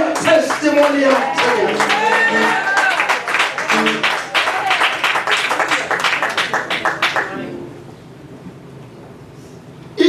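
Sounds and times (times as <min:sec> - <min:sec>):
congregation clapping in rhythm: 0:00.0 - 0:07.4
low hum of hall: 0:00.0 - 0:10.0.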